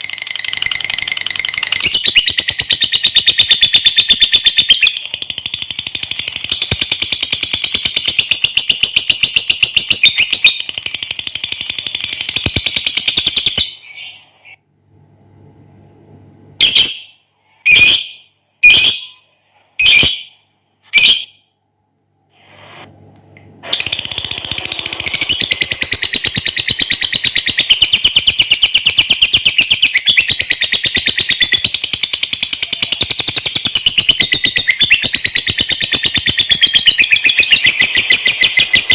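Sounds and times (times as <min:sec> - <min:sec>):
shrill bird calls: 0:00.0 - 0:05.2, 0:06.5 - 0:10.8, 0:16.6 - 0:21.4, 0:23.8 - 0:38.9
lovebird chattering trill: 0:00.0 - 0:14.2, 0:23.8 - 0:38.9.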